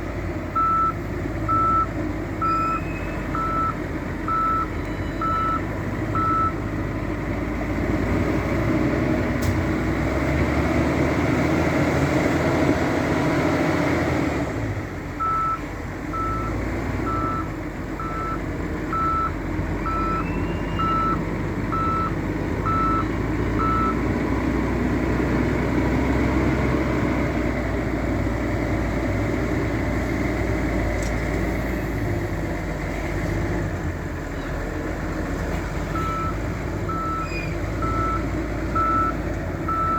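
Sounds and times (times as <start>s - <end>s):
heavy diesel engine running: 0.0s - 39.9s
reversing alarm beeping: 0.6s - 6.6s, 15.2s - 24.0s, 35.9s - 39.9s.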